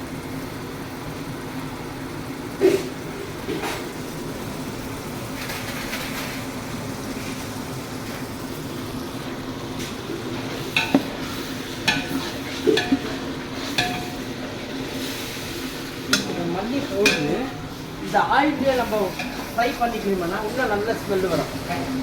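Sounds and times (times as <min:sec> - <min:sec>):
paste sizzling in oil: 0:02.5 - 0:22.0
ladle clanking on pot: 0:10.4 - 0:14.4, 0:16.1 - 0:17.7.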